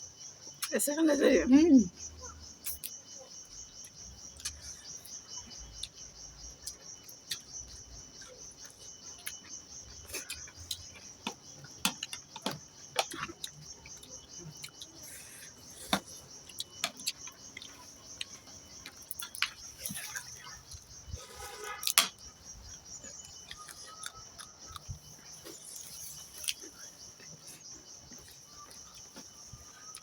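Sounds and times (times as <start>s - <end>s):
crickets trilling: 0.0s - 30.0s
person eating: 8.2s - 11.2s, 11.9s - 22.0s, 23.0s - 27.6s.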